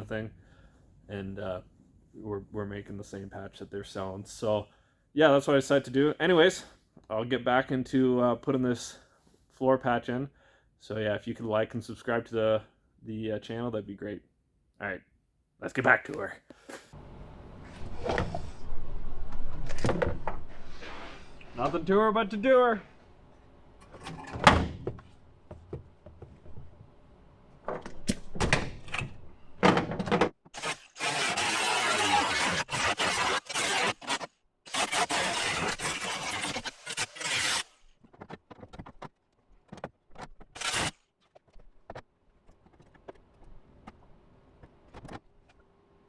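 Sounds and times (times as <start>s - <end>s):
welding crackling hiss: 30.6s - 37.7s.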